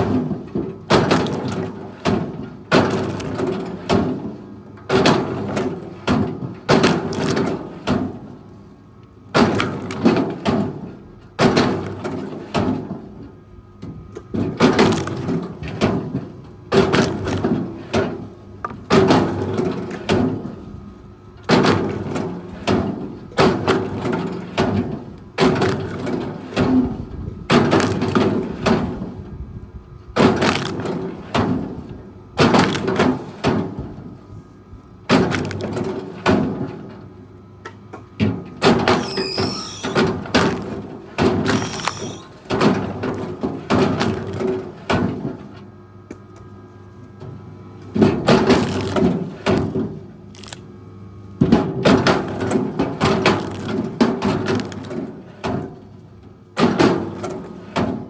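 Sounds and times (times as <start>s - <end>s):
heavy knocks with wood cracking: 0.0s - 8.3s, 9.3s - 13.1s, 14.3s - 20.6s, 21.5s - 29.1s, 30.2s - 31.8s, 32.4s - 34.1s, 35.1s - 36.8s, 39.8s - 45.4s, 47.9s - 50.5s, 51.4s - 55.8s
low machine hum: 0.0s - 58.0s.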